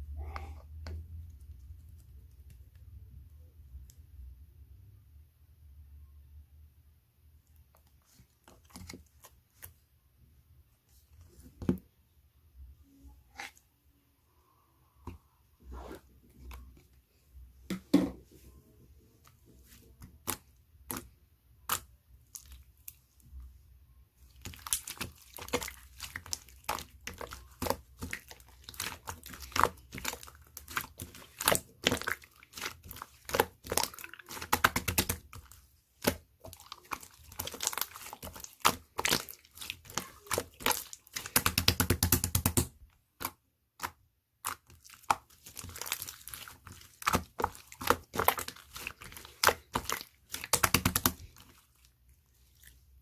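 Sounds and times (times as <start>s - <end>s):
slime squished by hand: 24.2s - 53.0s.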